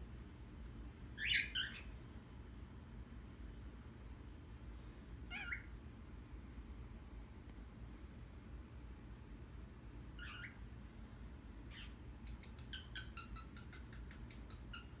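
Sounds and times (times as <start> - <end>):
animal high calls: 5.3 - 5.7, 10.2 - 10.6.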